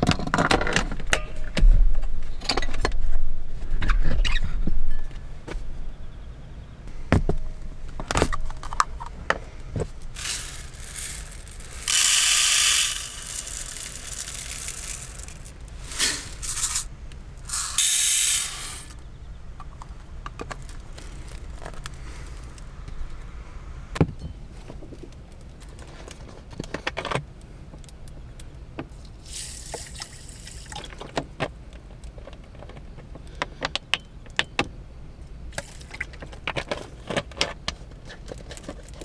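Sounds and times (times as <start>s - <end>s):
handling clicks and knocks: 6.9s - 17.9s
hissing bursts: 9.9s - 19.0s.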